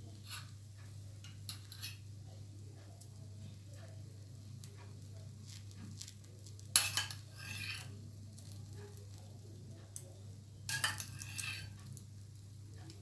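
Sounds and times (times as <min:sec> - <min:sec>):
utensil scraping a frying pan: 0:00.0 - 0:00.6, 0:01.2 - 0:02.1, 0:03.4 - 0:09.4, 0:10.7 - 0:12.2
bread sizzling in oil: 0:00.0 - 0:13.0.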